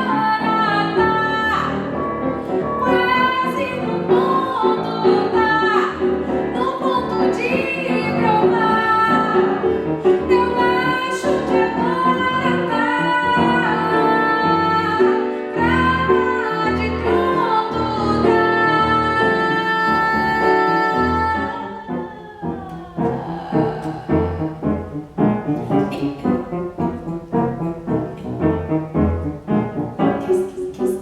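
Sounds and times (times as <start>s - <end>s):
woman singing: 0.0s - 2.0s, 2.7s - 25.0s
instrumental accompaniment: 1.8s - 31.0s.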